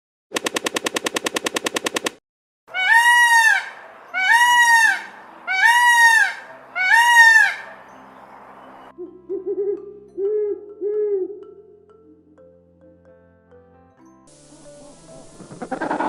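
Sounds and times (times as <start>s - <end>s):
rapid rattle of clicks: 0.4s - 2.2s
loud animal calls: 2.7s - 7.8s, 15.4s - 16.0s.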